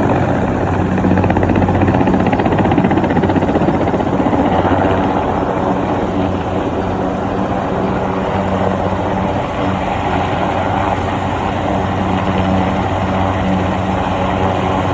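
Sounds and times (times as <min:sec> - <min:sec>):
helicopter engine and rotor: 0:00.0 - 0:14.9.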